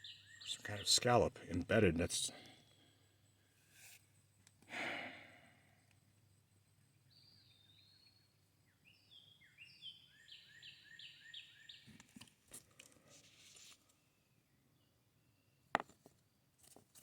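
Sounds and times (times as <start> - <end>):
songbird singing: 0.0 - 4.5, 5.2 - 12.3
brief rustle: 11.9 - 14.0.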